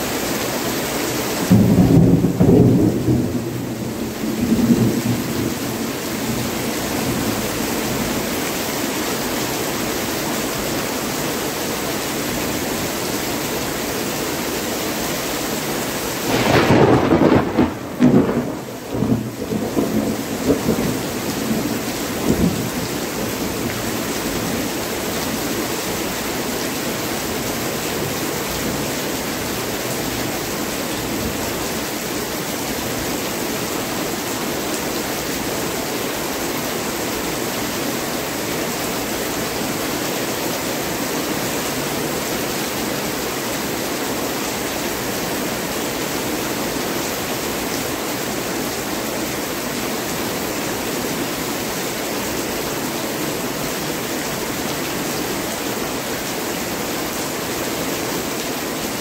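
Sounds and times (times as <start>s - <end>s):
heavy rain pouring: 0.0s - 59.0s
deep thunder rumble: 16.3s - 22.7s.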